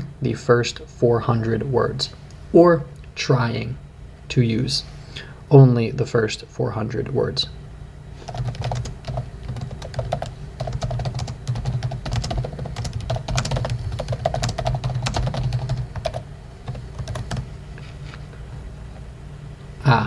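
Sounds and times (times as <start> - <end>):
keyboard typing: 8.3 - 17.5.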